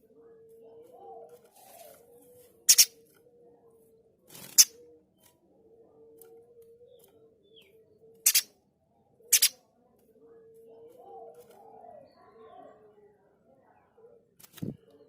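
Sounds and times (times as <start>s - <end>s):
bird giving harsh sharp calls: 2.7s - 2.9s, 8.3s - 8.5s, 9.4s - 9.6s.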